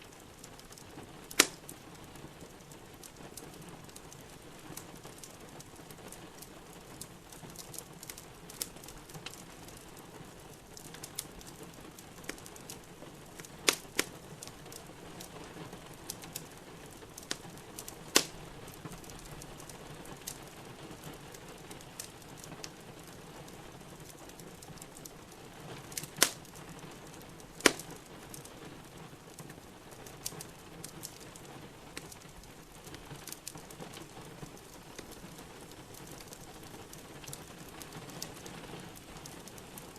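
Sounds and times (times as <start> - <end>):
rain hissing: 0.0 - 39.9
wood fire crackling: 0.0 - 39.9
loud sharp fire pops: 0.5 - 1.7, 12.2 - 14.8, 17.2 - 18.4, 25.9 - 28.4.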